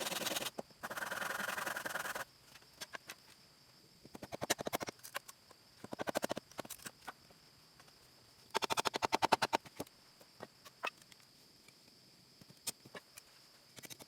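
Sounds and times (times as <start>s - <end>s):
faint high insect drone: 0.0s - 14.0s.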